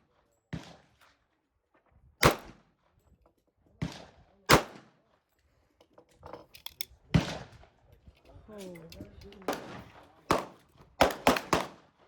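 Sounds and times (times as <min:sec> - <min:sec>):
pistol shots: 0:02.2 - 0:02.6, 0:03.9 - 0:04.8, 0:09.5 - 0:11.8.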